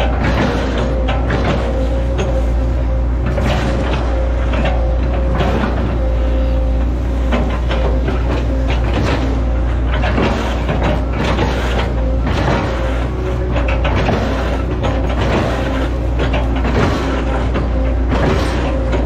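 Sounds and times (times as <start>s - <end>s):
excavator diesel engine running: 0.0s - 19.0s
machine knocks and clatter: 0.0s - 19.0s.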